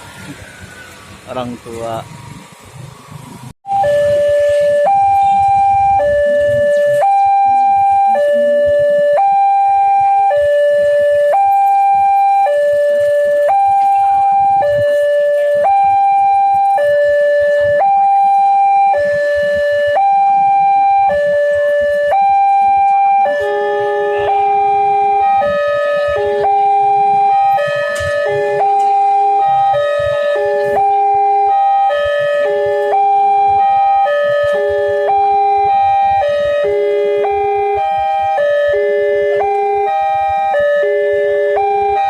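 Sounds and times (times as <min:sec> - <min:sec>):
lower-toned crossing alarm: 0:00.0 - 0:42.0
level crossing alarm two-tone signal: 0:03.6 - 0:42.0.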